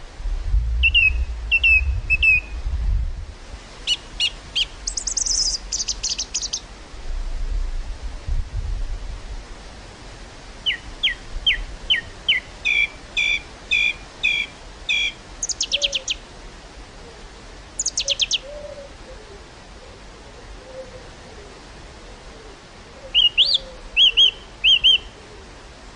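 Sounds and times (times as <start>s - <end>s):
faint outdoor hiss: 0.0s - 25.9s
songbird singing: 0.8s - 2.7s, 3.8s - 6.7s, 10.6s - 16.2s, 17.8s - 19.4s, 22.9s - 25.5s.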